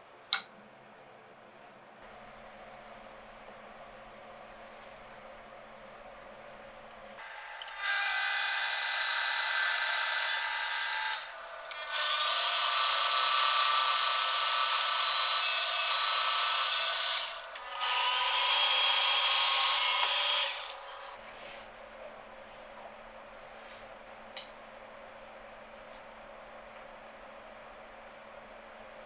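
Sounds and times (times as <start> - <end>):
drill press boring into wood: 7.2 - 21.2.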